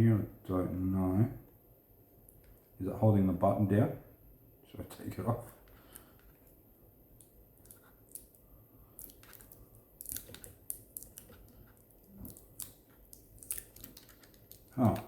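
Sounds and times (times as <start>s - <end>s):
plastic crinkling and clicks: 9.0s - 15.0s
sticky tape peeling off plastic: 9.0s - 15.0s.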